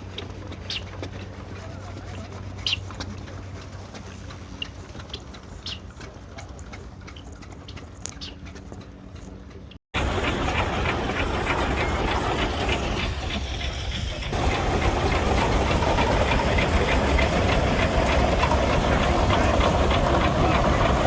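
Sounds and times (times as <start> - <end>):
steam engine clatter: 8.6 - 21.0
steam engine hissing: 10.0 - 21.0.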